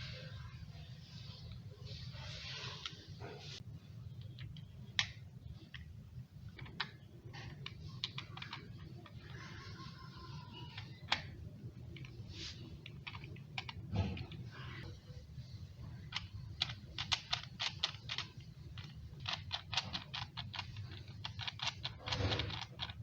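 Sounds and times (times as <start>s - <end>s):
low steady hum: 0.0s - 23.0s
kettle parts clicking and tapping: 4.2s - 5.9s, 6.5s - 10.0s, 10.6s - 14.4s, 15.9s - 23.0s.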